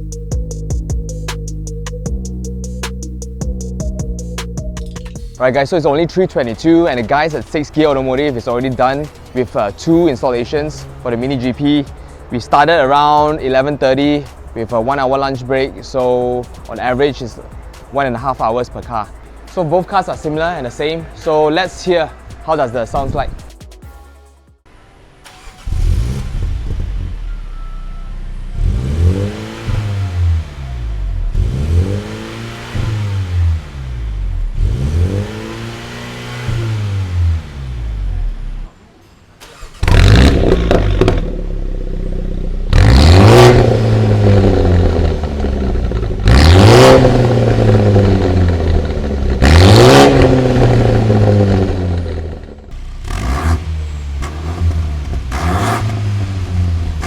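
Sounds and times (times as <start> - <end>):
car engine revving: 6.6 - 16.3, 25.2 - 27.3, 28.3 - 38.7, 39.4 - 57.0.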